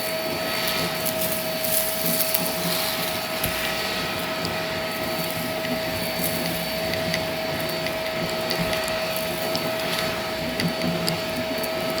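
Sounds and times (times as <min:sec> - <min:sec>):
vacuum cleaner motor whine: 0:00.0 - 0:12.0
sharp ticks of debris picked up: 0:04.4 - 0:12.0.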